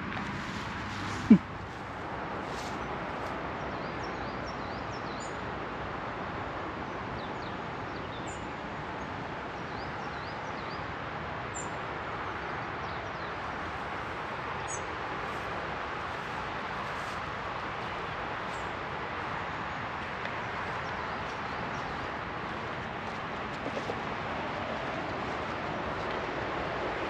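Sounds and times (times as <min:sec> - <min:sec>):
small birds chirping: 0:00.4 - 0:05.4, 0:14.6 - 0:26.2.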